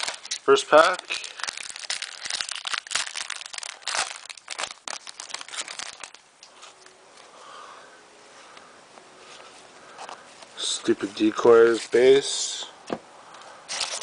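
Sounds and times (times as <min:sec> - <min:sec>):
wrapper tearing and crinkling: 0:00.0 - 0:06.2, 0:13.7 - 0:14.0.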